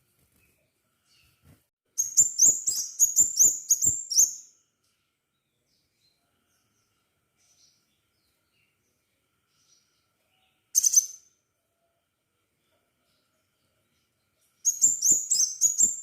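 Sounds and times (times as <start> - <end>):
bird singing sharp high chirps: 2.0 - 4.6, 10.8 - 11.4, 14.6 - 16.0.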